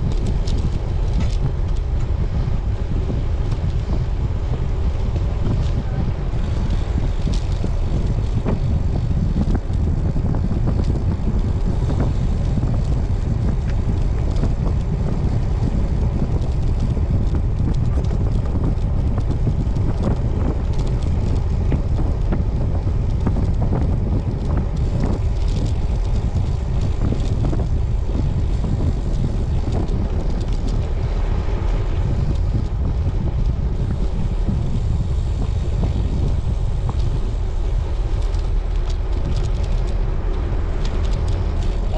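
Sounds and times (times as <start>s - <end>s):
road and tyre noise: 0.0s - 41.9s
wind buffeting microphone: 0.0s - 41.9s.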